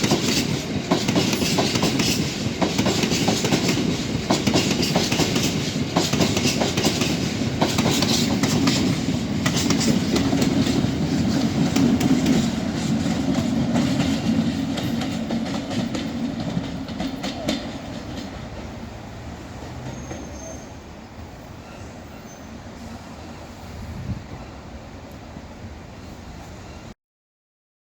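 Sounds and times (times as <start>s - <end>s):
freight train wheels clattering: 0.0s - 20.7s.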